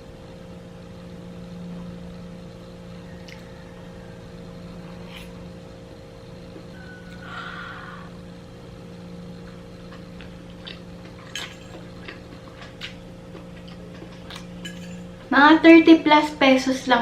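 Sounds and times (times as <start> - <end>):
steady low hum: 0.0 - 17.0
chewing: 9.4 - 15.3.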